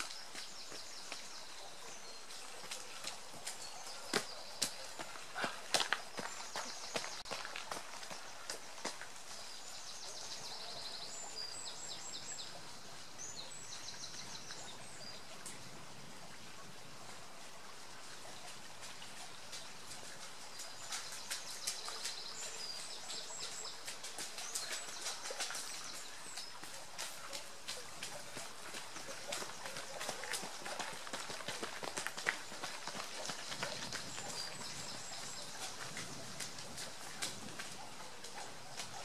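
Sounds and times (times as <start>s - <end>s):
steady outdoor hiss: 0.0s - 39.0s
runners' footfalls on road: 2.4s - 9.6s, 19.6s - 39.0s.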